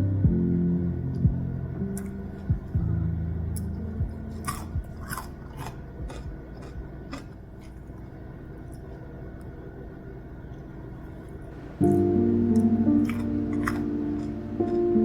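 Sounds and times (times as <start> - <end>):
soft background music: 0.0 - 8.4, 11.2 - 15.0
food crunching while chewed: 4.3 - 8.1, 11.8 - 14.8.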